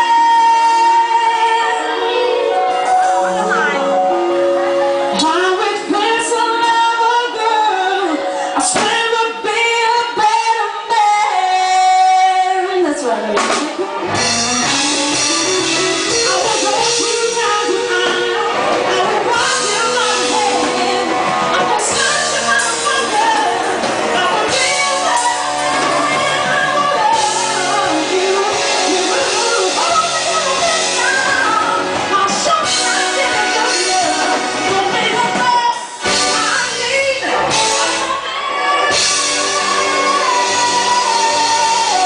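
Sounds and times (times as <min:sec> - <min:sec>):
live rock band playing: 0:00.0 - 0:42.0
person singing: 0:00.0 - 0:42.0.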